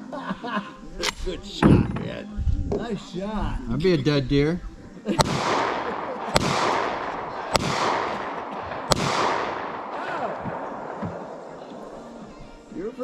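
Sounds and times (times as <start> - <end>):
gunshots with echo: 5.1 - 12.3.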